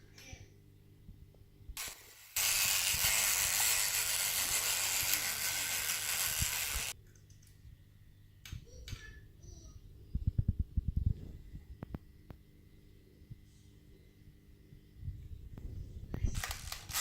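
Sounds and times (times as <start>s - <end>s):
fishing reel cranking rattle: 2.4s - 7.0s, 16.4s - 17.0s.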